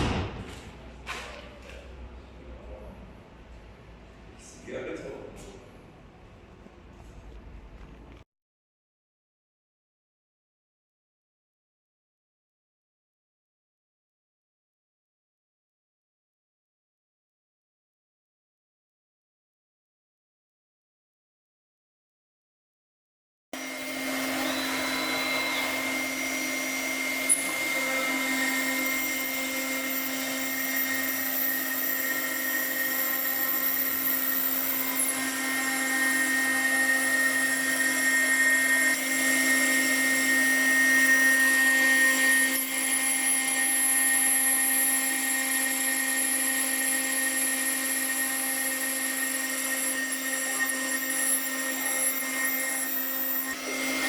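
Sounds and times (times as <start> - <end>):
router spindle whining: 23.6 - 54.0.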